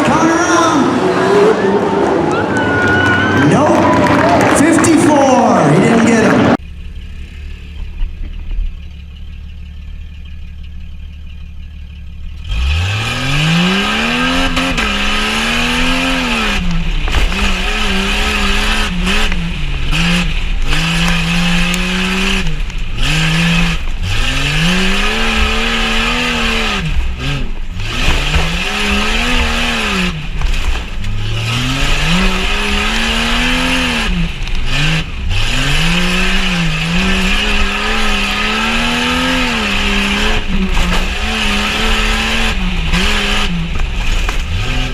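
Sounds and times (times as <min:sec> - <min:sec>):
engine revving under throttle: 0:12.3 - 0:44.9.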